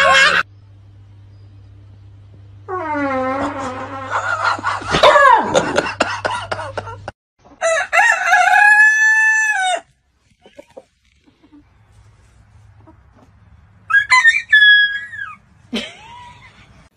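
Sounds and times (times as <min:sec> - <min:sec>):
rooster crowing: 0:07.6 - 0:09.9, 0:13.9 - 0:15.4.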